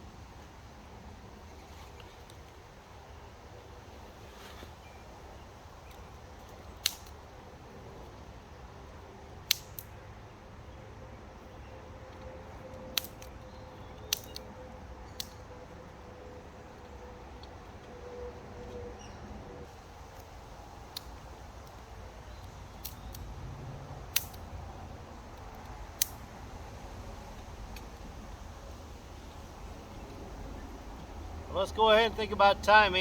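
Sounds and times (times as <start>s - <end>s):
wood fire crackling: 3.9s - 9.9s, 19.6s - 33.0s.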